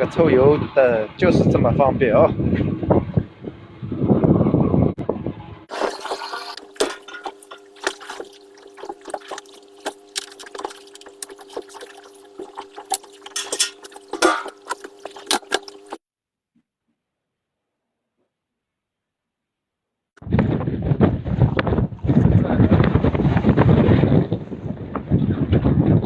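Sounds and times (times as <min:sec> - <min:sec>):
fuel pump humming: 0:05.7 - 0:16.0
liquid splashing and ticking: 0:05.7 - 0:16.0.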